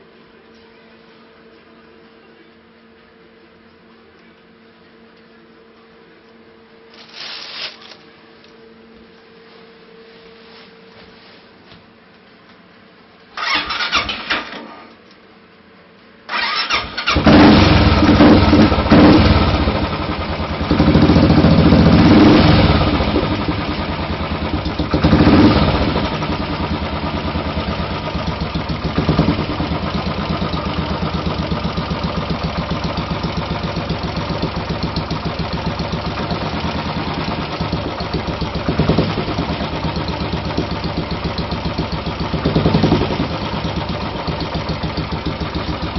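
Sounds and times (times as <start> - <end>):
motorcycle engine starting and idling: 13.4 - 14.8, 16.3 - 45.9.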